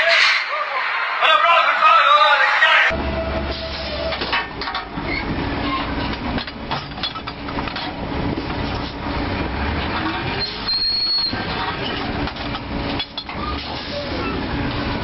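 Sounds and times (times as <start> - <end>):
mechanical clattering and rattling: 4.1 - 9.0.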